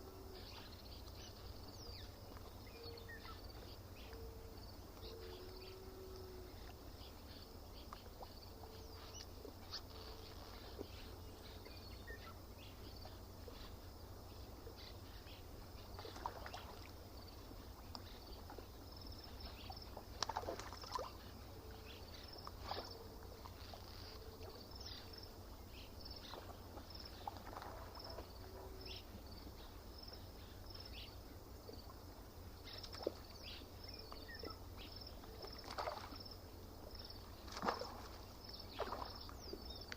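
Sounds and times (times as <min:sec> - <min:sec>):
water lapping at shore: 0:00.0 - 0:39.9.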